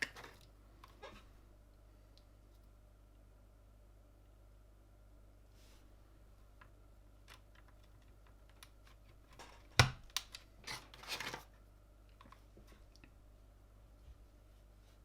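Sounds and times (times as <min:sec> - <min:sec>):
scraping and rustling: 0:10.6 - 0:11.5.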